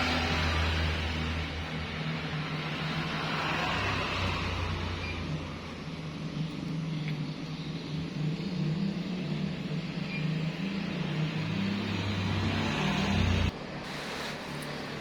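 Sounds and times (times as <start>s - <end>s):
rain hissing: 10.9s - 15.0s.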